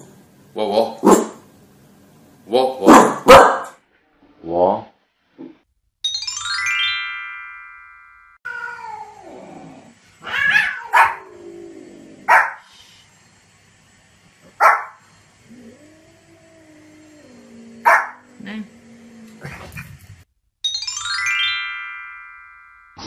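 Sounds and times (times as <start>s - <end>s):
small dog barking: 2.9s - 3.8s, 10.4s - 11.3s, 12.3s - 12.6s, 14.6s - 15.0s, 17.8s - 18.2s
bright rising chime: 6.0s - 8.4s, 20.6s - 23.0s
dog crying: 8.5s - 9.3s, 10.2s - 11.4s.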